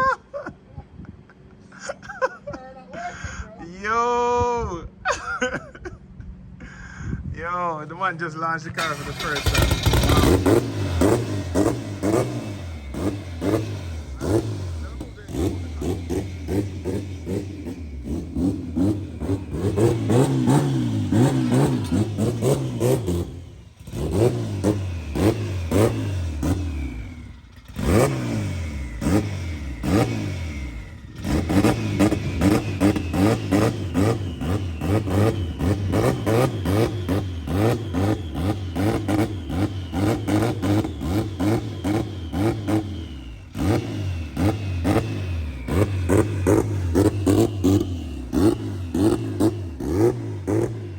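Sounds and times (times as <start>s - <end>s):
car engine revving hard: 8.8s - 50.9s.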